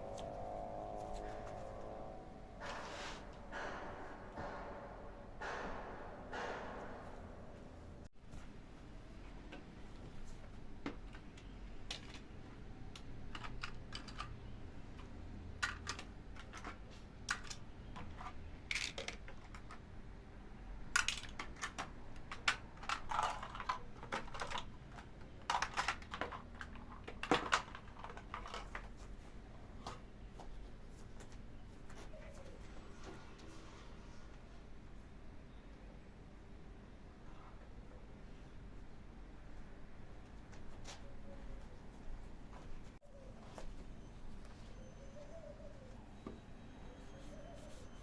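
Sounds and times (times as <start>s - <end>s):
small objects clicking and clattering: 13.0s - 14.4s, 15.0s - 19.8s, 20.9s - 29.1s.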